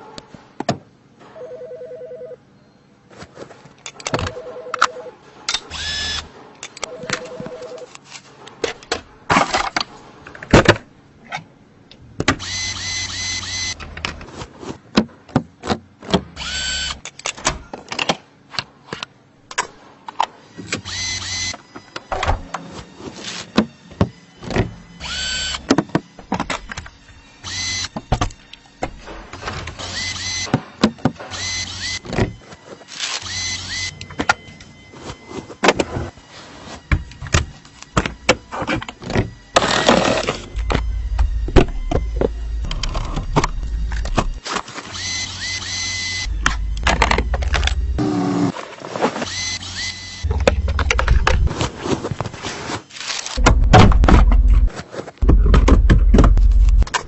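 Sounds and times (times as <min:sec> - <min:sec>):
small electric motor running: 0:05.7 - 0:06.3, 0:12.4 - 0:13.8, 0:16.4 - 0:17.0, 0:20.8 - 0:21.5, 0:24.9 - 0:25.7, 0:26.9 - 0:28.0, 0:29.8 - 0:30.5, 0:31.3 - 0:32.0, 0:33.1 - 0:34.0, 0:39.3 - 0:48.5, 0:49.3 - 0:51.5.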